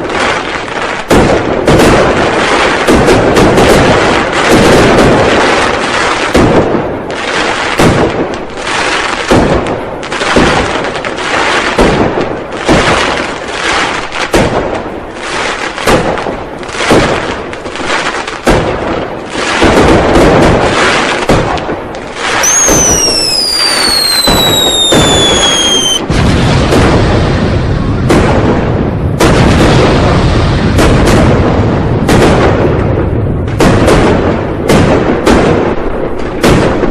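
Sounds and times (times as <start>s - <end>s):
firecrackers banging: 0.0s - 36.9s
firework crackle: 0.0s - 36.9s
whistling firework: 19.3s - 31.4s.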